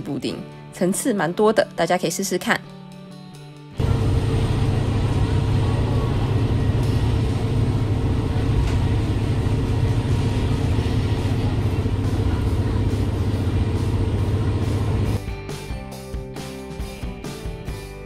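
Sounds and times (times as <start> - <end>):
diesel railcar rumbling: 3.8 - 15.2.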